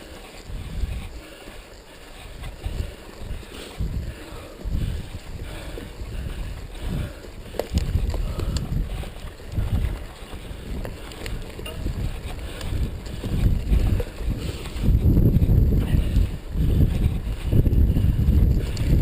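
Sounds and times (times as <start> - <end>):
wind rushing over microphone: 0.0 - 1.4, 2.1 - 19.0
bike clicks and rattles: 0.0 - 19.0
mountain bike on dirt trail: 0.0 - 19.0.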